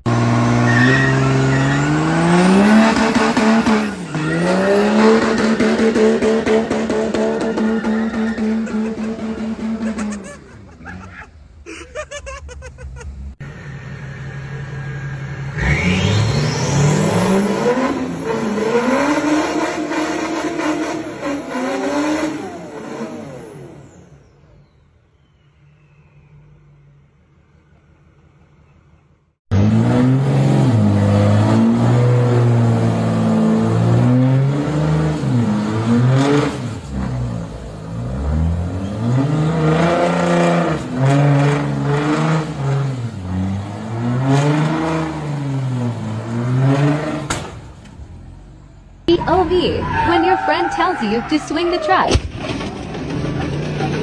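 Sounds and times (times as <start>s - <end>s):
truck engine revving hard: 0.0s - 11.2s, 13.4s - 24.1s, 29.5s - 47.6s, 49.1s - 54.0s
tires squealing on concrete: 0.0s - 27.1s, 29.5s - 47.7s, 49.1s - 54.0s.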